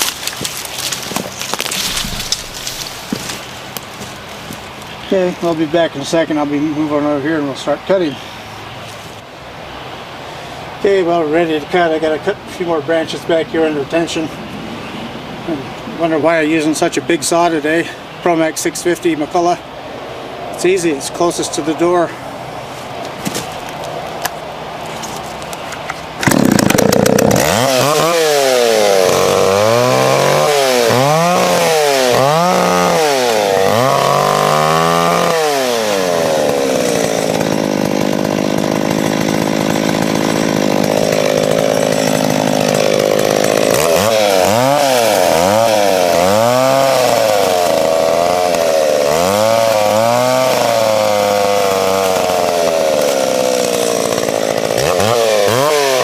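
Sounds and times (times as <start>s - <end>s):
loud two-stroke chainsaw: 0.0s - 4.1s, 26.1s - 56.0s.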